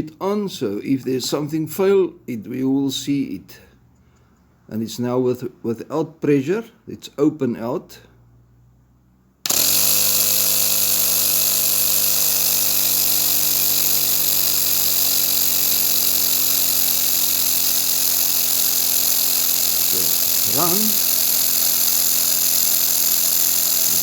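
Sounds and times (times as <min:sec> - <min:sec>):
air compressor running: 0:09.4 - 0:24.0.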